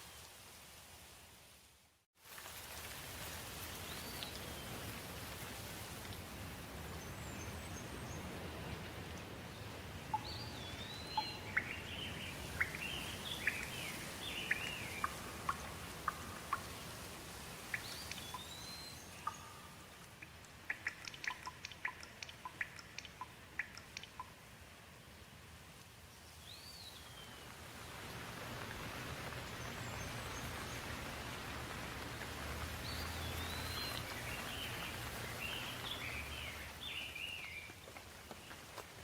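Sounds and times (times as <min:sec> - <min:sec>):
steady rain: 0:00.0 - 0:39.0
birds singing: 0:10.1 - 0:16.7, 0:17.7 - 0:19.7, 0:32.8 - 0:37.8.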